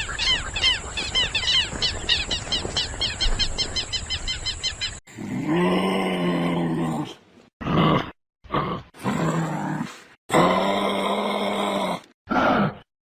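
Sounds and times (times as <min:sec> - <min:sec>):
birds calling: 0:00.0 - 0:05.0.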